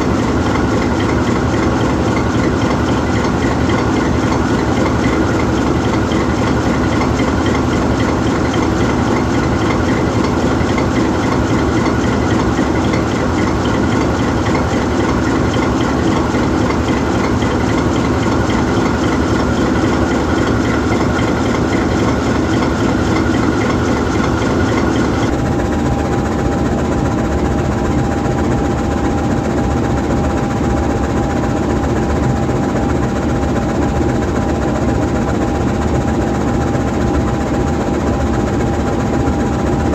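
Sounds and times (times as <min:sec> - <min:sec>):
locomotive diesel engine idling: 0:00.0 - 0:25.3
steady mid-pitched whine: 0:00.0 - 0:39.9.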